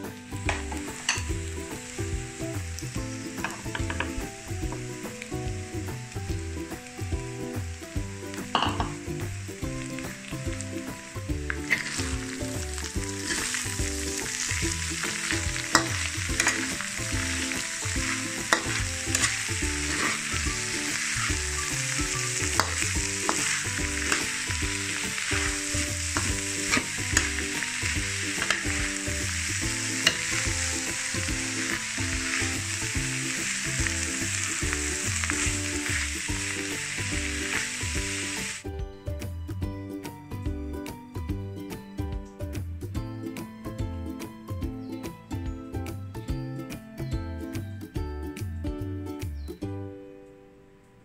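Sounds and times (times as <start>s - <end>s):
food sizzling in a pan: 0.0s - 38.7s.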